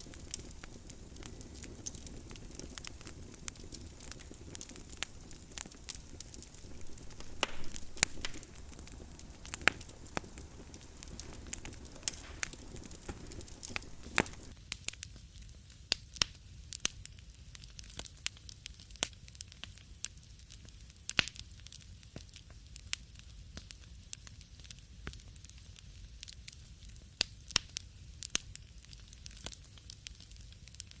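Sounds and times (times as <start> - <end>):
soft hiss: 0.0 - 14.6
wood fire crackling: 0.0 - 15.5, 17.6 - 30.9.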